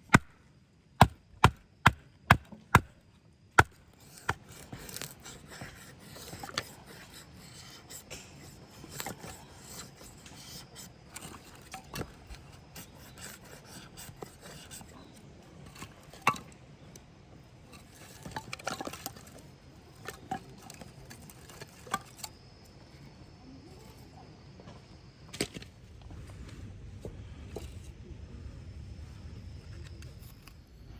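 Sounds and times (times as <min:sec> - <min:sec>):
objects scraping: 0:17.7 - 0:22.3.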